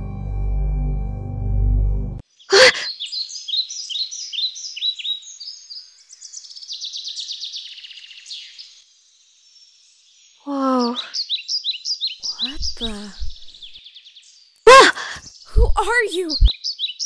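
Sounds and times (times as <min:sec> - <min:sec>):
low dark music: 0:00.0 - 0:02.2
songbirds singing: 0:02.2 - 0:17.0.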